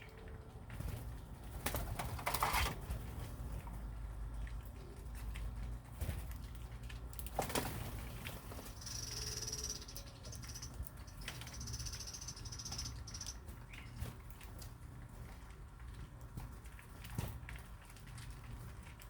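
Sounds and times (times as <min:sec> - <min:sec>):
bird wing flutters: 0:00.8 - 0:03.4
bird buzzy trill: 0:08.6 - 0:13.4.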